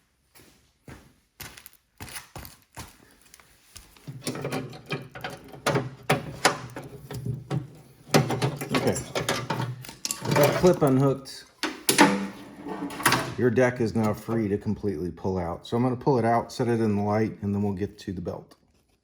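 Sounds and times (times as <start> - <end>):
metal clicks and clanks: 4.0 - 13.4.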